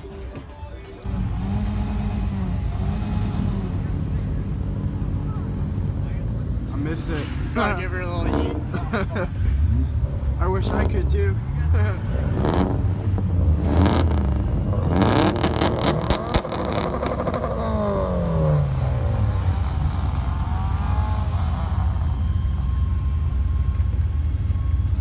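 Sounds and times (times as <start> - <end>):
car engine revving: 1.0 - 24.4
sharp exhaust pops: 12.4 - 17.7.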